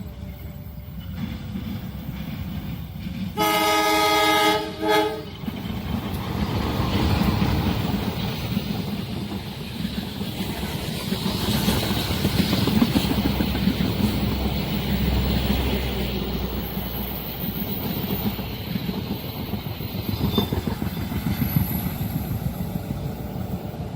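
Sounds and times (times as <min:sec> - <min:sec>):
passing train rumbling: 0:00.0 - 0:23.9
train horn blasts: 0:03.4 - 0:05.4.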